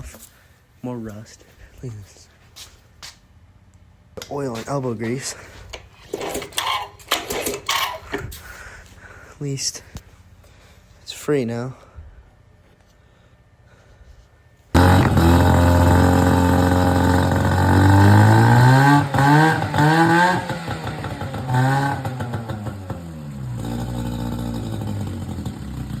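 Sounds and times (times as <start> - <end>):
outboard motor revving: 14.8 - 26.0.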